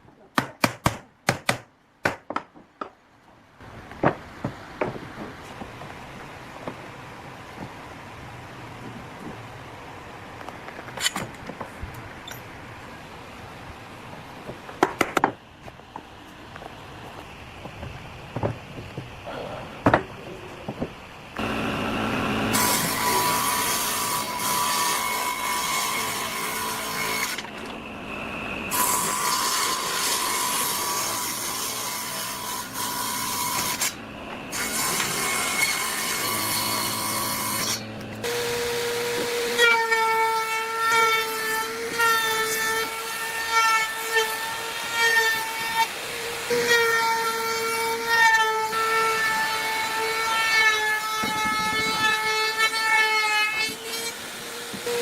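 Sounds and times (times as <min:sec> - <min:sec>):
woodworking tools working: 0:03.7 - 0:55.0
motorised tool high whine: 0:21.4 - 0:23.6.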